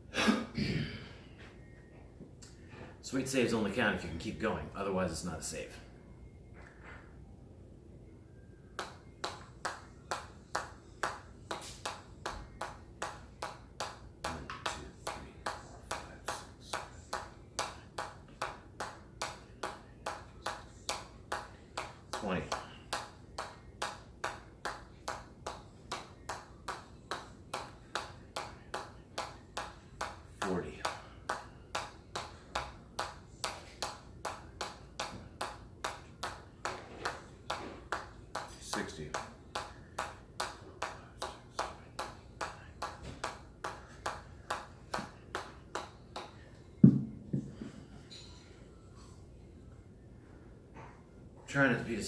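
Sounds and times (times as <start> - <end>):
hard ball tapping: 8.8 - 47.7
ball thudding and bouncing: 46.8 - 47.7.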